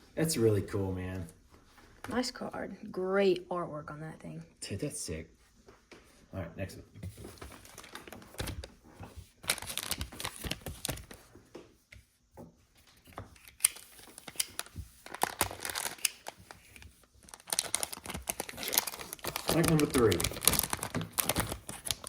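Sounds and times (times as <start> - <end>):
foil wrapper tearing and crinkling: 7.6 - 8.6, 9.4 - 11.2, 13.6 - 22.0.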